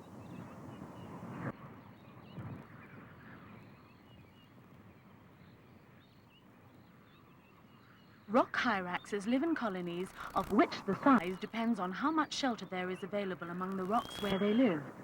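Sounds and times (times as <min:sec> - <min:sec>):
small bird chirps: 0:12.2 - 0:14.9.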